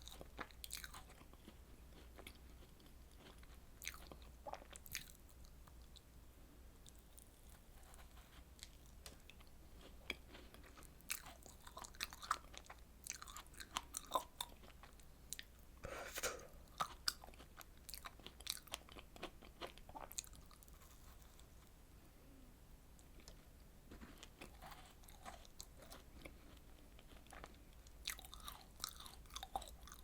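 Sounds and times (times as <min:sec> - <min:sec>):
rustly chewing: 0:00.0 - 0:05.2, 0:06.8 - 0:15.6, 0:16.2 - 0:21.7, 0:23.1 - 0:30.0
person chewing: 0:00.0 - 0:06.0, 0:06.8 - 0:21.6, 0:23.0 - 0:30.0.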